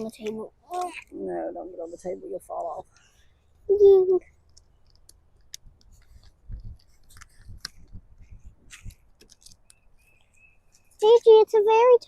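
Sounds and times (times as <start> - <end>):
stencil sheets crinkling: 4.5 - 9.8
wind buffeting microphone: 6.4 - 9.1.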